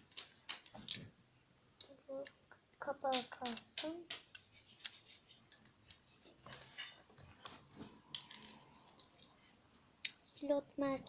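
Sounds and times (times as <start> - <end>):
plastic bricks clicking together: 0.0 - 1.1, 1.8 - 6.0.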